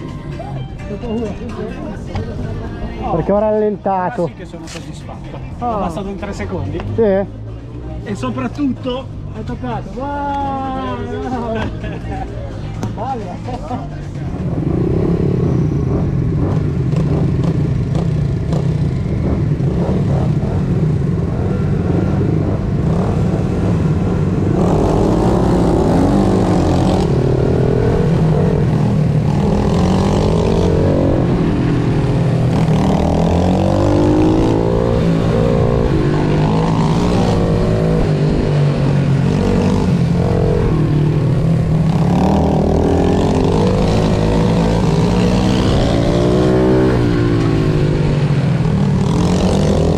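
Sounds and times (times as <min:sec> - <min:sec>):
pit bike engine revving: 0:14.6 - 0:49.9.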